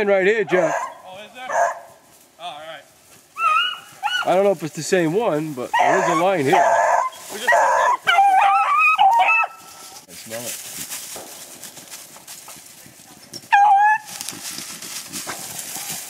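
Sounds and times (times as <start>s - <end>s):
beagles baying: 0.4s - 2.2s, 3.1s - 4.5s, 5.6s - 10.1s, 11.2s - 14.6s.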